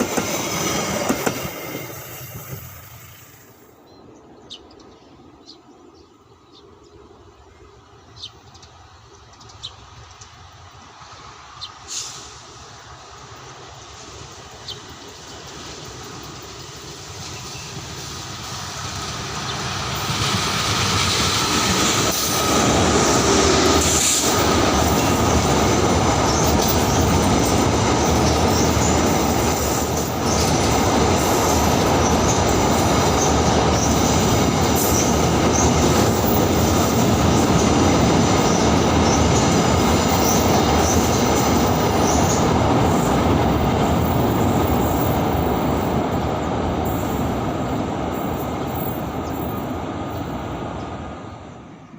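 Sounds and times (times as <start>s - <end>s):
clickety-clack over rail joints: 0.0s - 2.7s, 15.4s - 51.1s
train rolling on rails: 0.0s - 51.9s.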